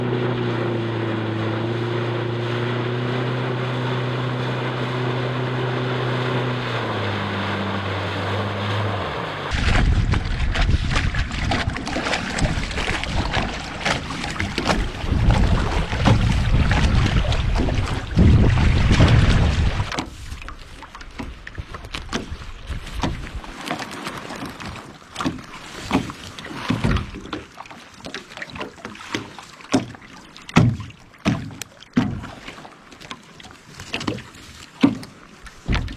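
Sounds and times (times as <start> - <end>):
boat engine running: 0.0 - 35.9
boat knocks and thumps: 0.0 - 35.9
rushing water: 0.0 - 35.9
wind buffeting: 6.4 - 19.9.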